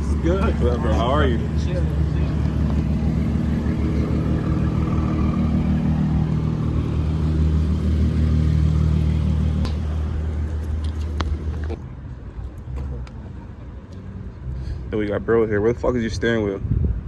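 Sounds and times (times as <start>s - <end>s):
car engine running: 0.0s - 11.8s.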